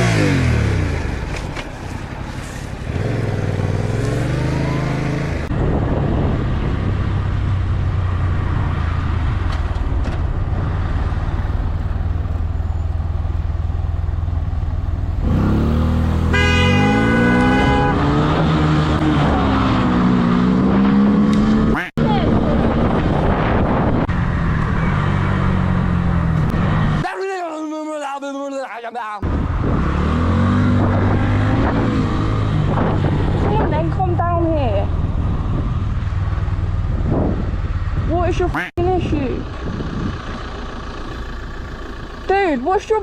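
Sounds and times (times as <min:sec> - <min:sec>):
vehicle engine revving: 0:00.0 - 0:01.5, 0:02.3 - 0:12.3, 0:14.8 - 0:27.0, 0:29.2 - 0:43.0
horn blast: 0:16.2 - 0:18.3.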